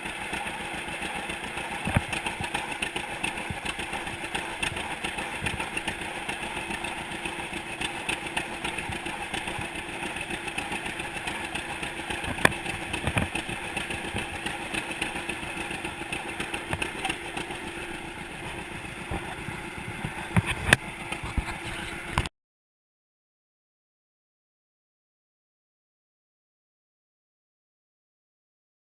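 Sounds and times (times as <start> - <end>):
sharp engine knocks: 0.0 - 22.3
tractor engine running: 0.0 - 22.3.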